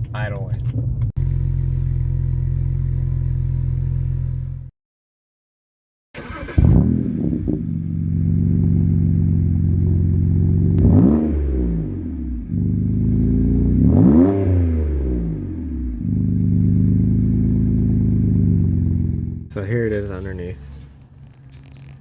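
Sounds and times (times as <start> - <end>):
car engine starting and idling: 0.0 - 4.7, 6.2 - 13.2, 15.2 - 22.0
engine revs from throttle blips: 6.4 - 19.5.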